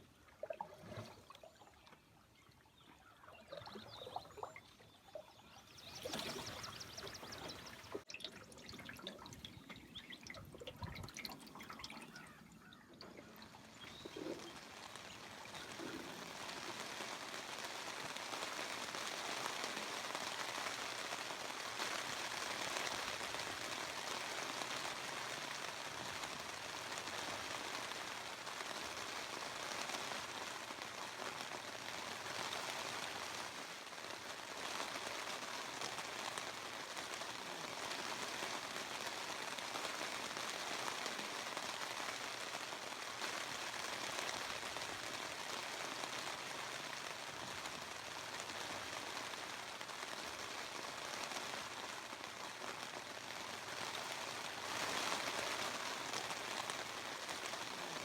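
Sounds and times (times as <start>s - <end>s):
water hissing and pattering: 0.3s - 49.8s.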